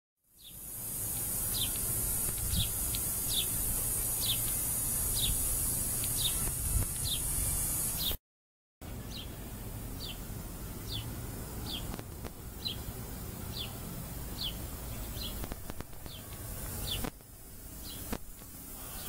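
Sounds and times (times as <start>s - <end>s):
steady high hiss: 0.3s - 8.2s, 8.8s - 19.0s
small bird chirping: 0.4s - 8.2s
low outdoor rumble: 8.8s - 19.0s.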